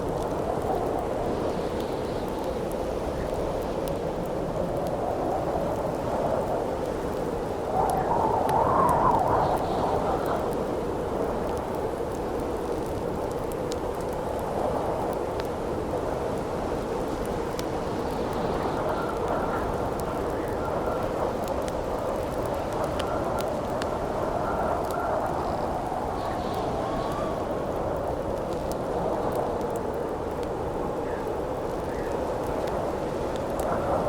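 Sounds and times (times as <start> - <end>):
campfire crackling and popping: 0.0 - 34.0
howling wind: 0.0 - 34.0.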